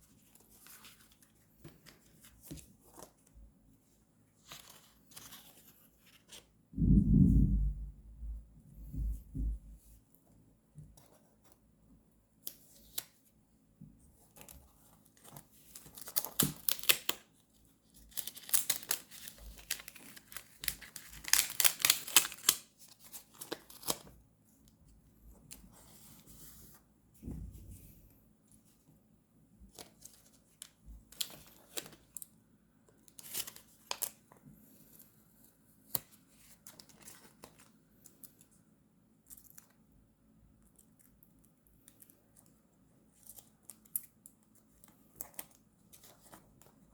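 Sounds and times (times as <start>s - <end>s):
paper rustling and tearing: 18.1s - 24.1s.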